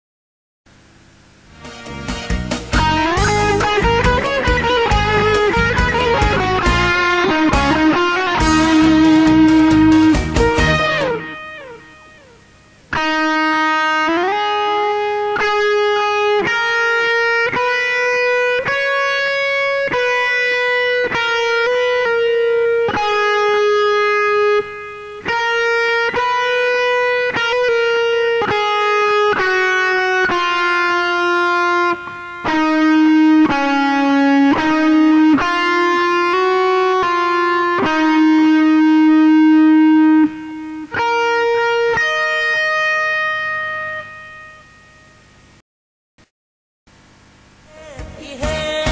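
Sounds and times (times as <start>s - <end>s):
lead guitar solo: 1.8s - 45.3s, 47.6s - 48.9s.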